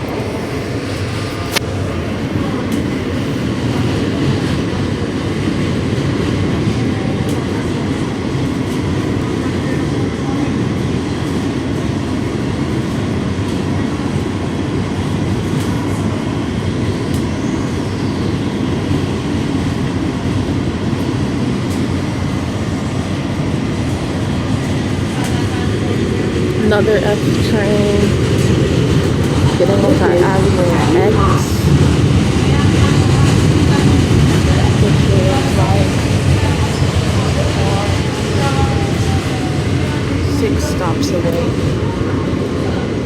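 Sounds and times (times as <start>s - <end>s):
train wheels rumbling on rails: 0.0s - 43.0s
rail clicks: 20.9s - 42.9s.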